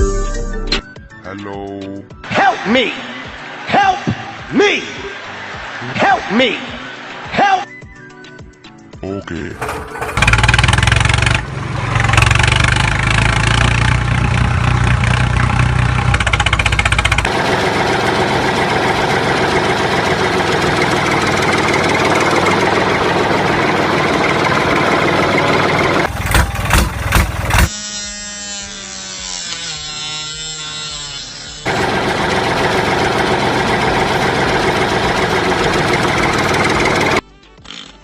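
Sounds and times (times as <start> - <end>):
motor running: 9.5 - 11.5, 15.8 - 37.2.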